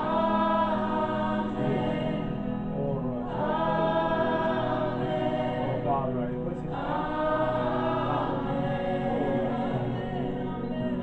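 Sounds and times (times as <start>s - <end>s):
choir singing sustained notes: 0.0s - 11.0s
low musical accompaniment: 0.0s - 11.0s.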